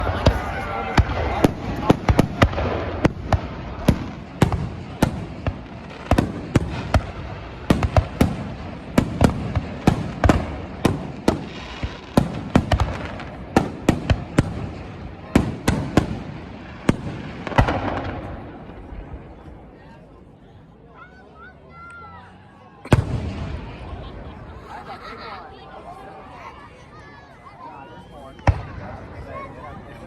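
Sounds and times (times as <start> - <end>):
fireworks bursting: 0.0 - 19.7, 28.3 - 29.5.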